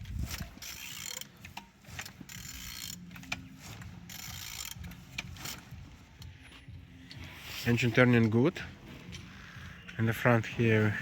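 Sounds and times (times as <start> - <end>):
ratchet clicking: 0.0 - 6.3.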